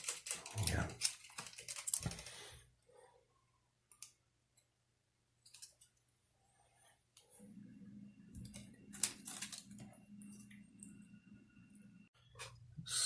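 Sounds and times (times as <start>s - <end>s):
small clicks and taps of handling parts: 3.9s - 4.7s, 5.4s - 6.0s.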